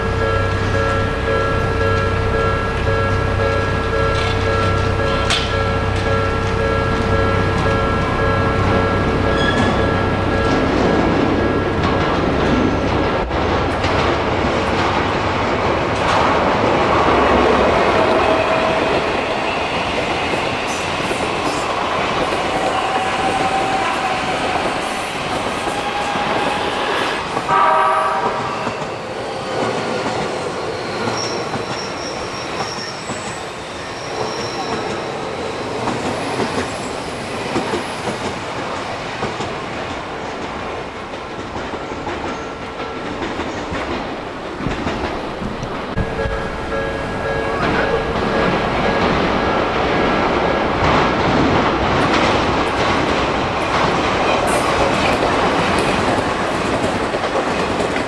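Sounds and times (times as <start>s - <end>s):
level crossing alarm ringing: 0.0s - 13.1s, 45.9s - 50.8s
train wheels clicking on rail joints: 0.1s - 58.0s
train horn blast: 25.6s - 29.0s.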